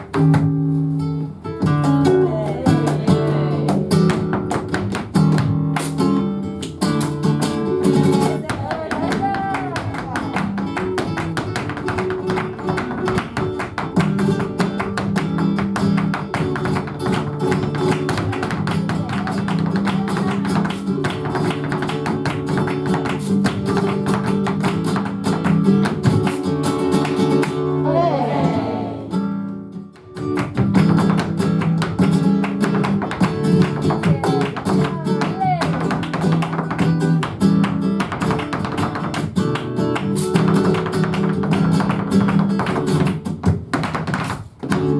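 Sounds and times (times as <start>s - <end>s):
dancer's footwork strikes: 0.0s - 27.6s, 30.0s - 44.9s
flamenco guitar: 0.0s - 44.9s
person singing: 2.0s - 4.4s, 27.8s - 29.2s, 33.9s - 35.9s.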